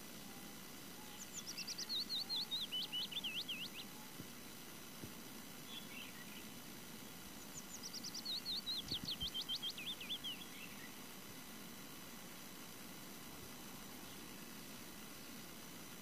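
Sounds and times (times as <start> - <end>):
outdoor hiss: 0.0 - 16.0
songbird whistling: 1.0 - 4.1, 7.4 - 10.9.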